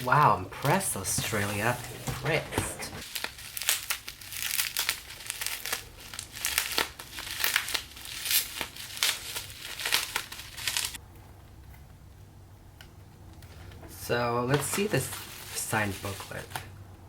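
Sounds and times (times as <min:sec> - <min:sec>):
packaging crinkling and rustling: 0:00.0 - 0:11.0, 0:14.5 - 0:16.8.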